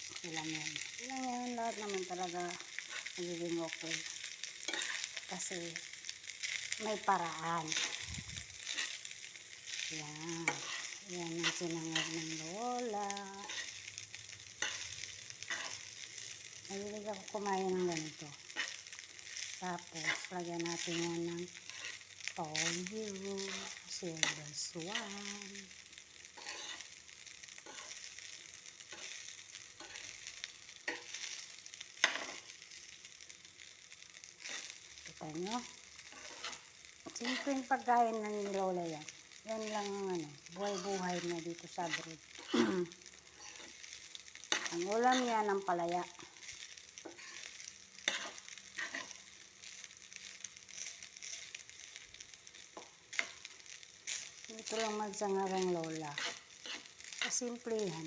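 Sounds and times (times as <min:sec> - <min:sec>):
rice sizzling in a wok: 0:00.0 - 0:58.0
spatula scraping a pan: 0:01.7 - 0:25.4, 0:26.3 - 0:32.6, 0:35.6 - 0:38.6, 0:39.6 - 0:52.0, 0:52.6 - 0:58.0
utensil scraping a pan: 0:14.6 - 0:15.9, 0:26.4 - 0:26.9, 0:48.1 - 0:49.2, 0:54.7 - 0:57.5.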